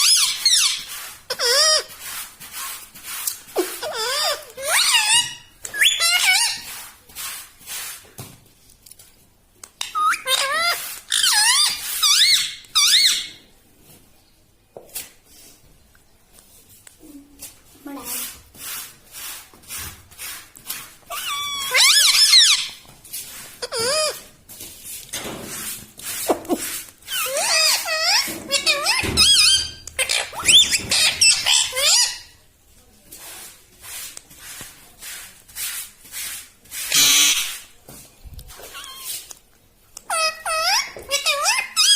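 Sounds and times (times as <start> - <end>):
parrot raspy squawks: 36.9 - 37.6.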